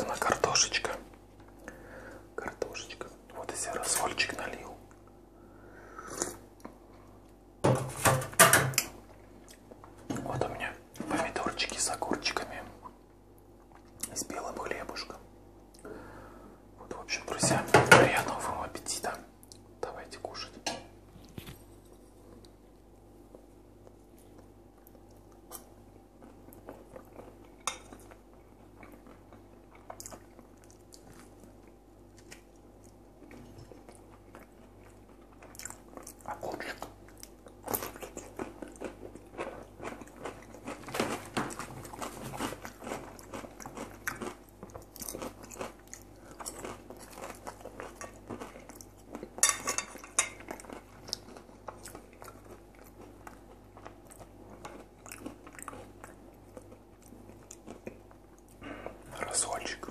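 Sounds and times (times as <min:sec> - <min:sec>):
chewing crispy fried potatoes: 0:21.2 - 0:59.9.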